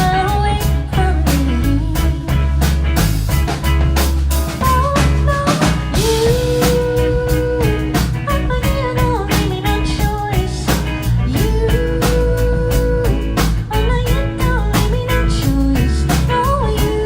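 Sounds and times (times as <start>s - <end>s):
bass and guitar: 0.0s - 17.0s
drum kit beat: 0.0s - 17.0s
person singing long held notes: 4.6s - 8.0s.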